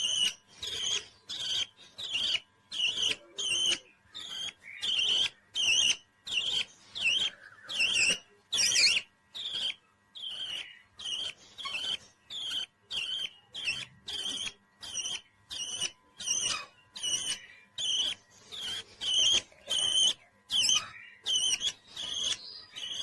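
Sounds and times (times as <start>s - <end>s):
parrot chirping call: 0.0s - 23.0s.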